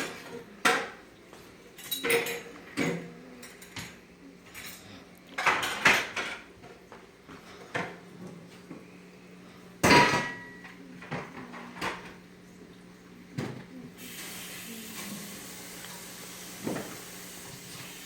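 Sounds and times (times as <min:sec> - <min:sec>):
pots and pans clattering: 0:00.0 - 0:01.0, 0:01.8 - 0:04.8, 0:05.4 - 0:06.8, 0:09.8 - 0:12.2.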